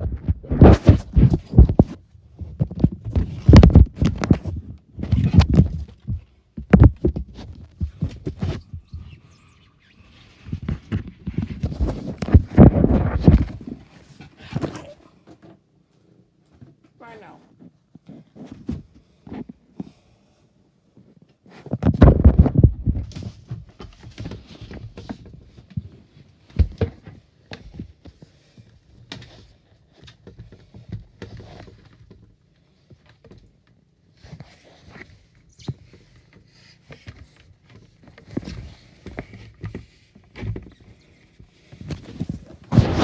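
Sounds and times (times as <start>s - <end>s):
loud thump: 42.7s - 43.0s.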